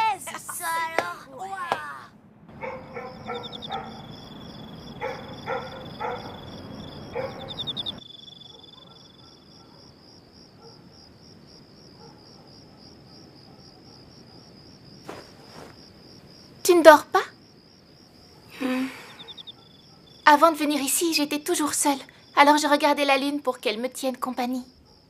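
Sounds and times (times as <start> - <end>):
short calls: 0.6 - 9.1, 18.4 - 20.3
crickets chirping: 2.5 - 25.0.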